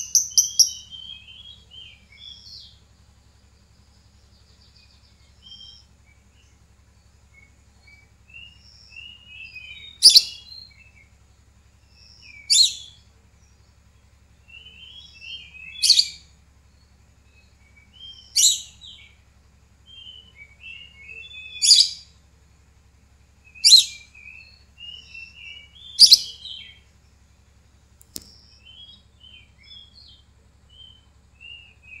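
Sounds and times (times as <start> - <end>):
bird chattering twitters: 0.0 - 2.5, 8.4 - 10.7, 23.6 - 26.8.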